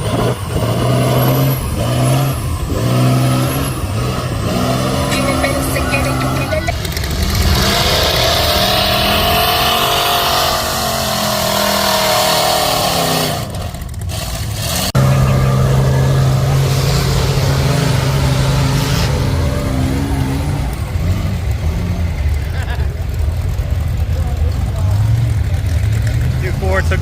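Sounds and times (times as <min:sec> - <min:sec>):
truck engine revving: 0:00.0 - 0:27.0
low engine drone: 0:01.5 - 0:11.5.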